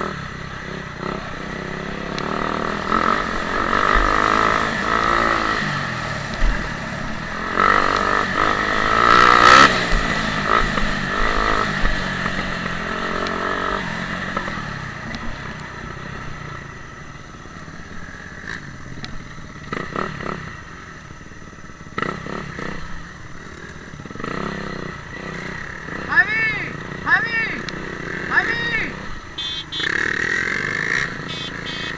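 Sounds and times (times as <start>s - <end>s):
dirt bike engines revving: 0.0s - 31.9s.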